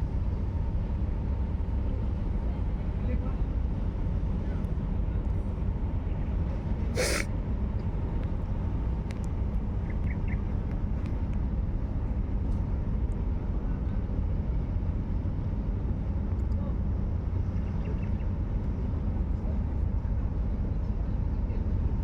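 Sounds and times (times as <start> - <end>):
short hiss: 7.0 - 7.3.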